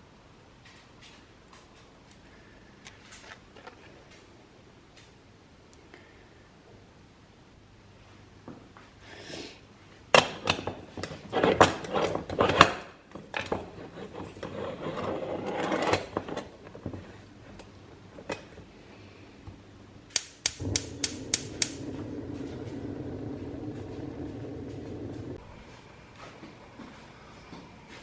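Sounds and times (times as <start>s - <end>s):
steady low hum: 9.6s - 28.0s
sharp clicks: 20.1s - 21.8s.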